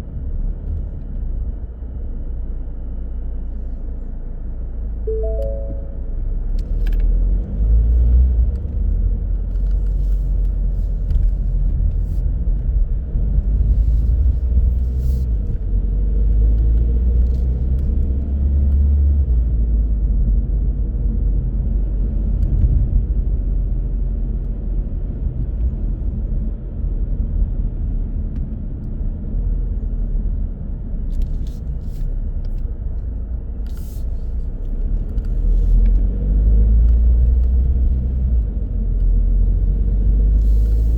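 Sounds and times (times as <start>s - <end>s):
car road and engine rumble: 0.0s - 40.9s.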